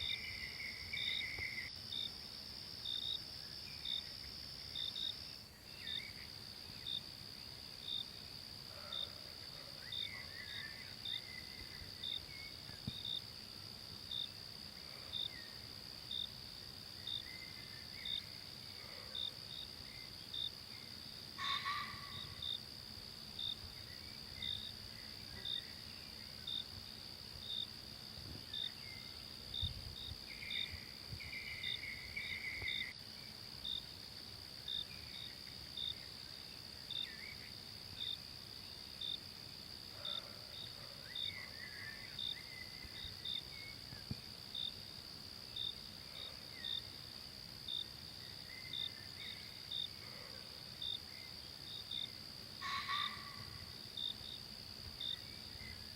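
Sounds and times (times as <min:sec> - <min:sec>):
cricket-like chirp: 0:00.0 - 0:55.9
insects droning: 0:00.0 - 0:55.9
faint bird calls: 0:21.4 - 0:22.4.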